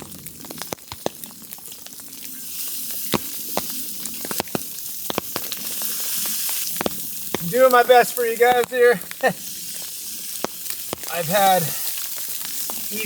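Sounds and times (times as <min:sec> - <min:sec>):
food sizzling in a pan: 0:00.0 - 0:13.0
sharp pops of frying: 0:00.0 - 0:13.0.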